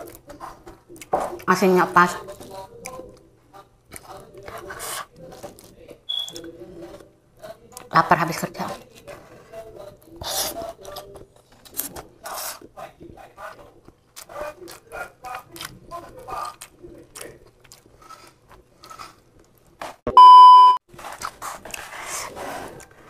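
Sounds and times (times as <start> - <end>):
chewing and mouth clicks: 2.3 - 7.0, 10.3 - 19.7
test-tone beep: 20.1 - 20.8.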